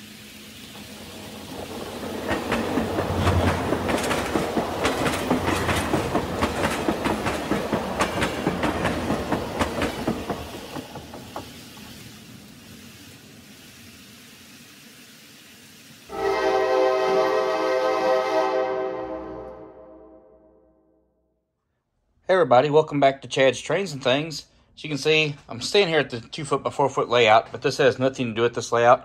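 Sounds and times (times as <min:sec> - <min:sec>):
train wheels clickety-clack: 0:00.7 - 0:11.9.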